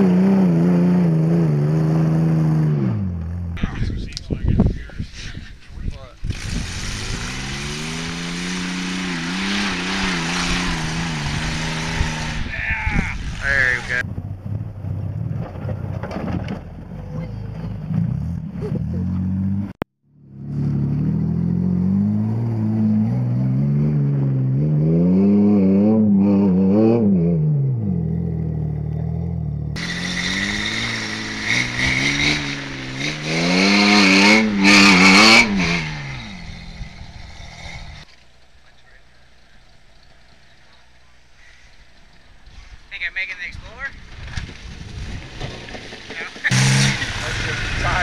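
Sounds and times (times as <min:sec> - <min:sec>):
pickup truck engine revving: 0:06.2 - 0:12.5, 0:28.9 - 0:38.1, 0:45.1 - 0:48.0.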